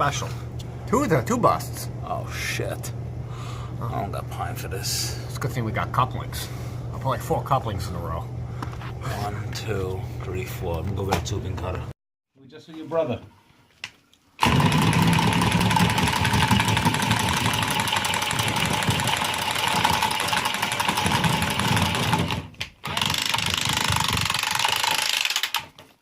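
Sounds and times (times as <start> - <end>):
machine running loudly: 14.4 - 25.5.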